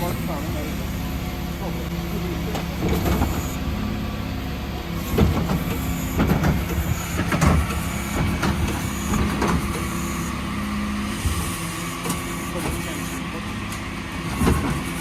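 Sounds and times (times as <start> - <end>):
refuse truck engine drone: 0.0 - 15.0
recycling knocking and clattering: 5.0 - 10.1.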